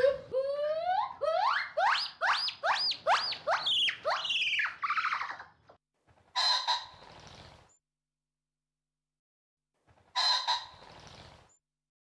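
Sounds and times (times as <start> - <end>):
gibbon whooping: 0.0 - 5.5.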